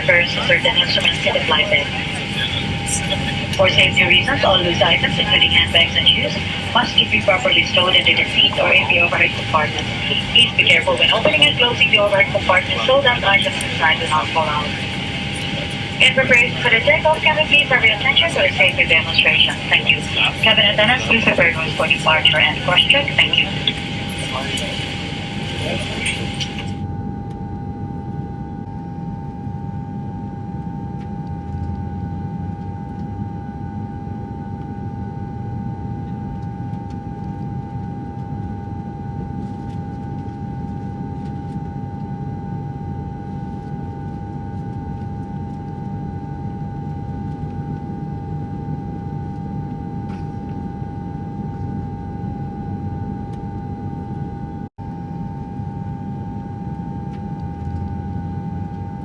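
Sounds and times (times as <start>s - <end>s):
jet engines rumbling: 0.0s - 26.9s
constant whine: 0.0s - 59.0s.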